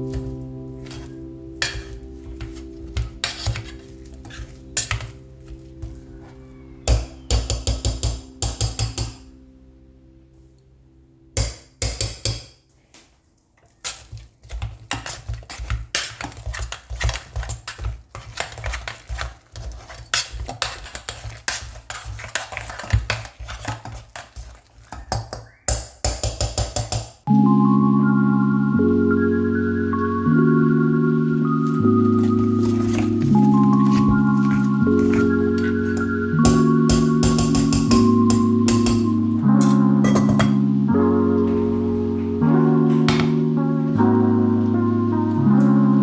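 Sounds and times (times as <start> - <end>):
soft background music: 0.0 - 12.6, 27.2 - 46.0
dishes and utensils clinking: 0.1 - 5.9, 6.8 - 9.3, 13.7 - 27.0, 32.2 - 40.7.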